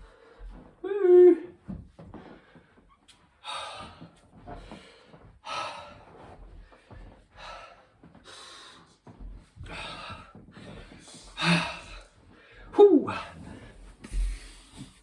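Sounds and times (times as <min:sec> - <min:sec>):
man breathing hard: 0:02.1 - 0:15.0.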